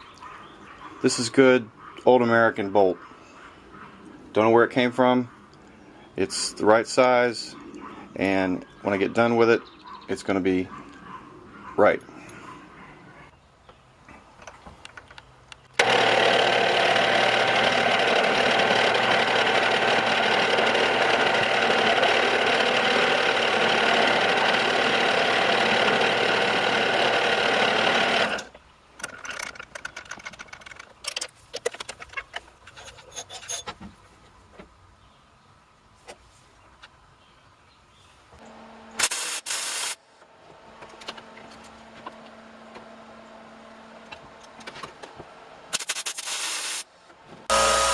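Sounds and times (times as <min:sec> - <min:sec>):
lathe motor running: 0:15.8 - 0:28.5, 0:47.5 - 0:47.9.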